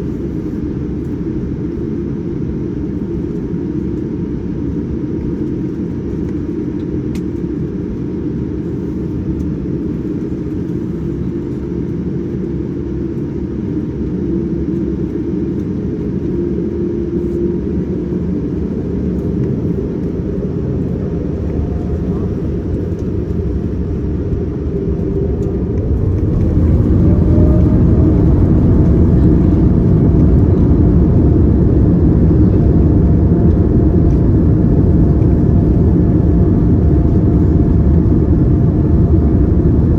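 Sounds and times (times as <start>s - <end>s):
airliner cabin rumble: 0.0s - 39.9s
jet engines spooling up: 15.4s - 36.0s.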